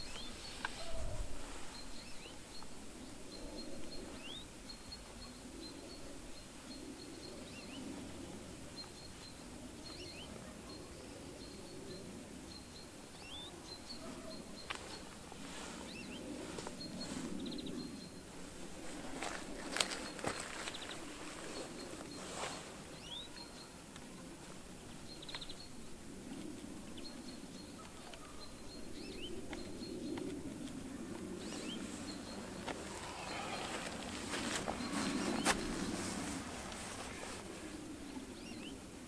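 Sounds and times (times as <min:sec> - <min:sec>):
low steady background noise: 0:00.0 - 0:39.0
small birds chirping: 0:00.0 - 0:39.0.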